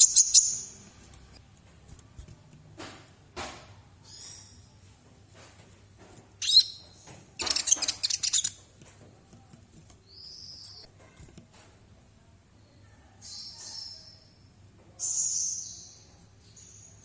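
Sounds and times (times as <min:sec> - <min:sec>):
bird chirping and twittering: 0:00.0 - 0:01.4, 0:04.0 - 0:04.9, 0:06.3 - 0:08.7, 0:09.8 - 0:10.9, 0:15.0 - 0:17.0.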